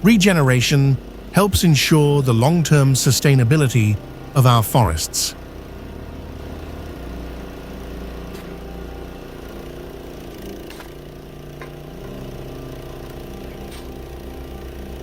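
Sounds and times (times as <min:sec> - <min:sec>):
heavy machinery engine running: 0:00.0 - 0:15.0.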